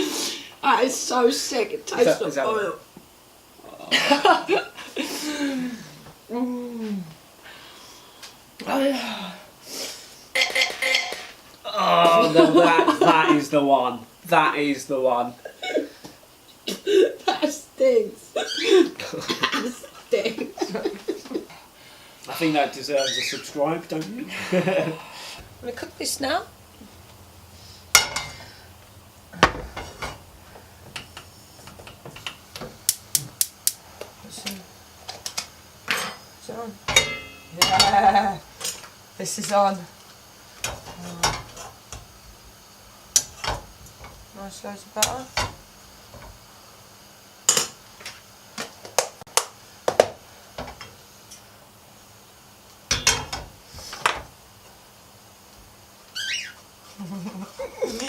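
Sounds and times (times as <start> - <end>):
metal cookware clattering: 10.4 - 11.3, 27.9 - 28.6, 29.4 - 30.3, 36.9 - 38.8, 52.9 - 53.5
utensils clinking against dishes: 10.4 - 11.4, 28.0 - 28.5, 36.9 - 38.8.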